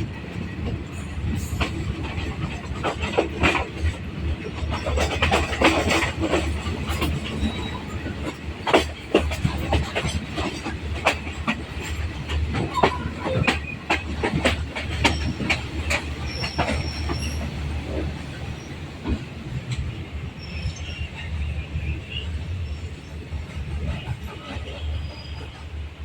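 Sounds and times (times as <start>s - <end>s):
train wheels clacking over rail joints: 0.0s - 20.0s
low train rumble: 0.0s - 26.0s
high wheel squeal: 16.2s - 17.5s.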